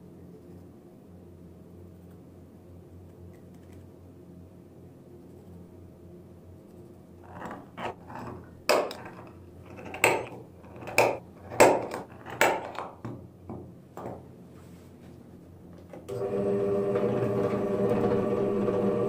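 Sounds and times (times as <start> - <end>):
hand tool knocking on wood: 10.0 - 14.3.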